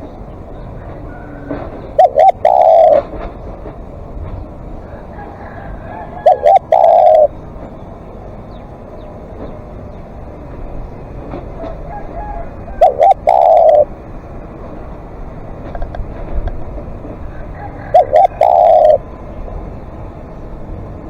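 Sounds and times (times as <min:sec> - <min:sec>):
dove cooing: 0:00.8 - 0:03.7, 0:04.8 - 0:07.4, 0:11.5 - 0:14.1, 0:16.6 - 0:19.2.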